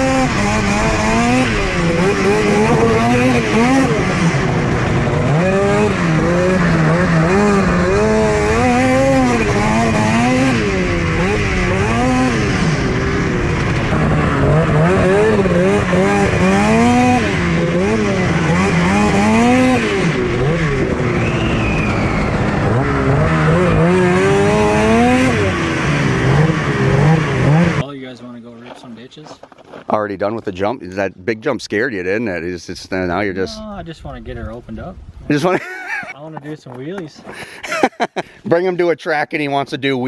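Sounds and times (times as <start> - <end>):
snowmobile engine revving: 0.0 - 27.9.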